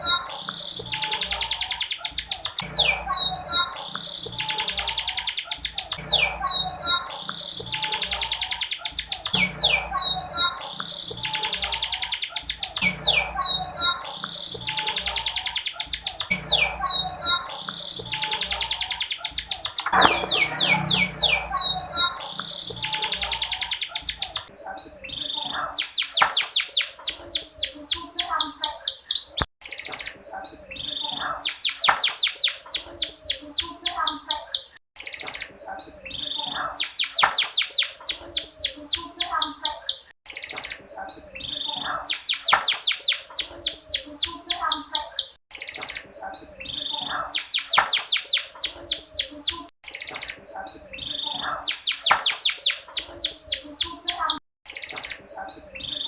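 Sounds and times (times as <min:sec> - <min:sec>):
canary twittering in trills: 0:00.0 - 0:56.0.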